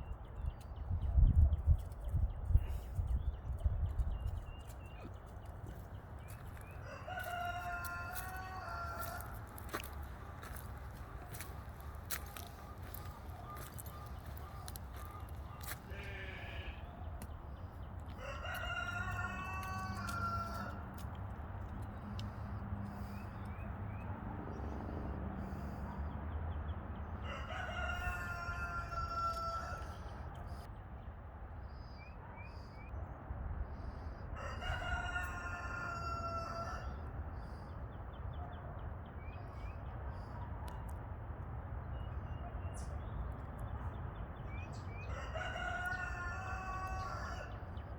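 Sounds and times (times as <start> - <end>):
rooster crowing: 6.8 - 10.6, 18.1 - 21.0, 27.2 - 30.1, 34.4 - 37.1, 45.0 - 47.6.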